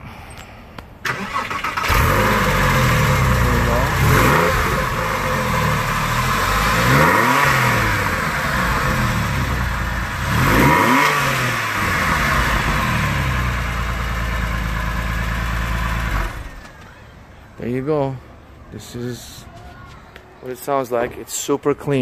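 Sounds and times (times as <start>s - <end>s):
car engine idling with revs: 1.9s - 16.7s.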